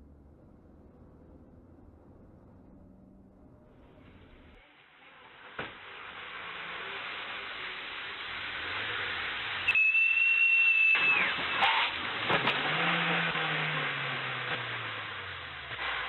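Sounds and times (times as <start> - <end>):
car road and engine noise: 0.0 - 16.0
high squeal: 6.9 - 12.0.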